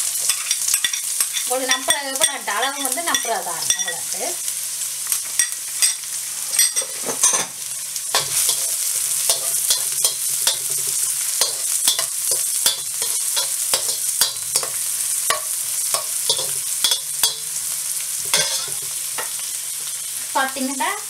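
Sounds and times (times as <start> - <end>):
garlic and onion sizzling in oil: 0.0 - 21.0
utensil scraping a pan: 18.2 - 20.1.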